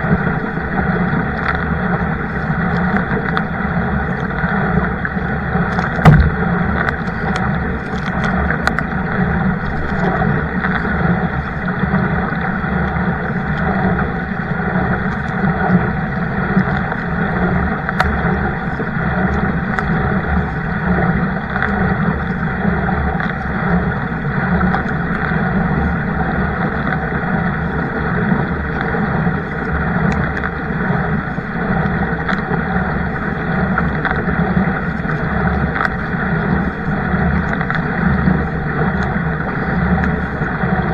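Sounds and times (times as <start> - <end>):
wind on microphone: 0.0 - 12.4
water moving along kayak: 0.0 - 40.9.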